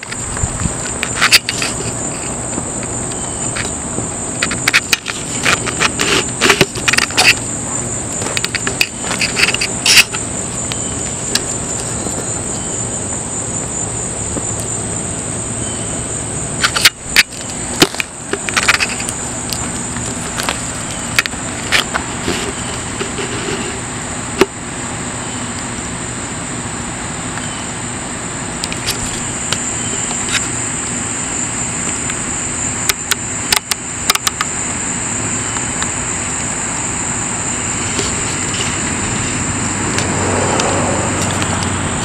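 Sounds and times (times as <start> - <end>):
sharp clicks and pops: 0.0 - 7.5, 8.2 - 12.4, 16.6 - 23.2, 32.9 - 34.5
high-pitched insect chorus: 0.0 - 42.0.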